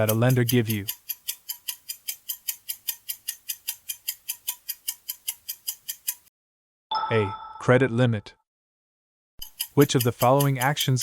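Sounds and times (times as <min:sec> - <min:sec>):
quick clock ticking: 0:00.0 - 0:06.3, 0:09.4 - 0:11.0.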